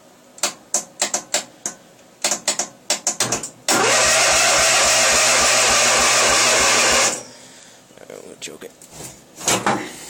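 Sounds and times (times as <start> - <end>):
starter cranking small engine: 3.7 - 7.2.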